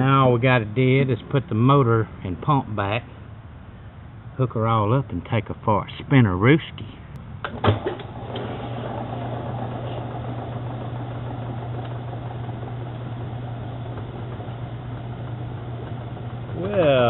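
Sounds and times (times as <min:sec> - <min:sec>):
washing machine motor hum: 0:07.5 - 0:17.0.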